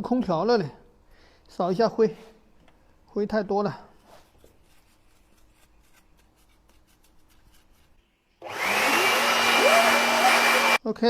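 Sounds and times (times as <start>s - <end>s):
electric air blower whining: 8.4s - 10.8s.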